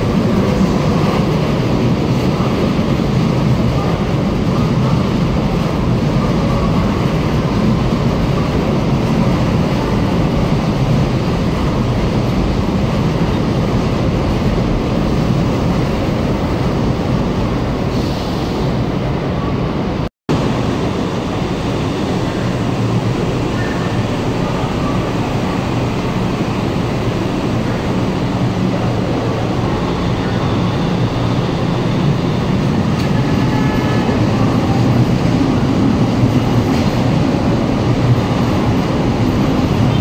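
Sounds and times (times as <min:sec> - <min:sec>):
train wheels rumbling: 0:20.3 - 0:40.0.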